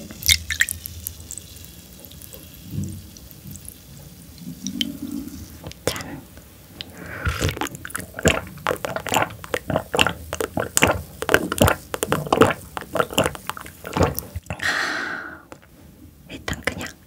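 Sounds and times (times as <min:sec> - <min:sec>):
person chewing food: 0:06.8 - 0:14.8.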